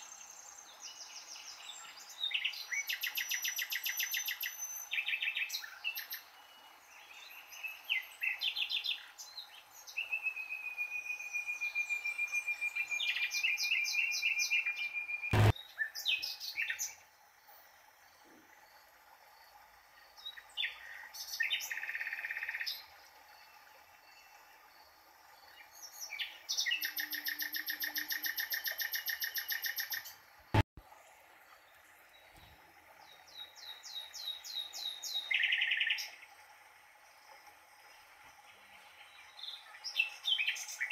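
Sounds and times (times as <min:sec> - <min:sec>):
songbird singing: 0:00.0 - 0:30.6, 0:31.5 - 0:36.3, 0:38.5 - 0:40.9
sharp click: 0:15.3 - 0:15.5.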